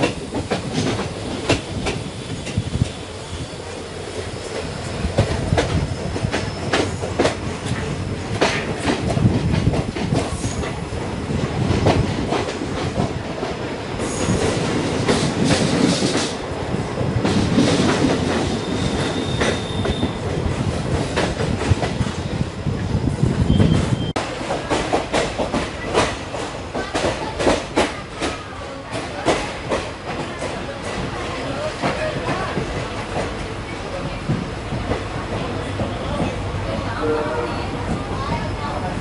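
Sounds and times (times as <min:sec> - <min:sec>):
train rumble: 0:00.0 - 0:39.0
train wheels clacking on rails: 0:00.0 - 0:39.0
high wheel squeal: 0:18.6 - 0:20.2.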